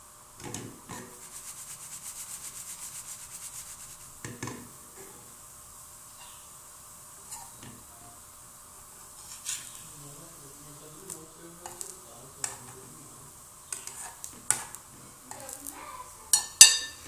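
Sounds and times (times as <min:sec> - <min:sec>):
faint steady hiss: 0:00.0 - 0:17.0
utensil knocking on frying pan: 0:04.2 - 0:04.8, 0:16.3 - 0:17.0.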